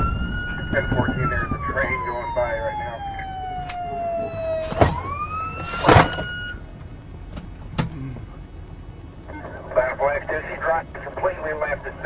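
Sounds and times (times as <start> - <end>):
loud bursts of noise: 0.0 - 6.6
police siren wailing: 0.0 - 6.7.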